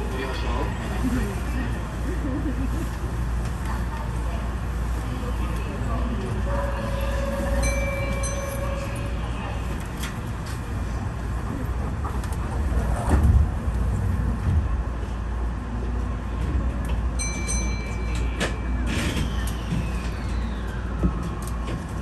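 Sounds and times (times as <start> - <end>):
stationary train rumble: 0.0 - 22.0.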